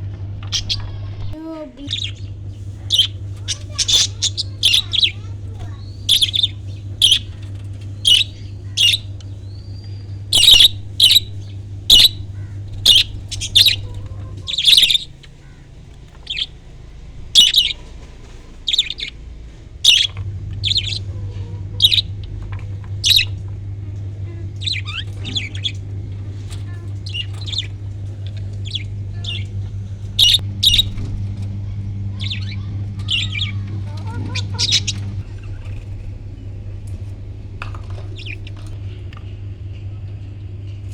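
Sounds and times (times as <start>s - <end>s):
steady low hum: 0.0s - 40.9s
parrots chirping: 1.8s - 23.4s, 24.6s - 31.0s, 32.2s - 35.2s.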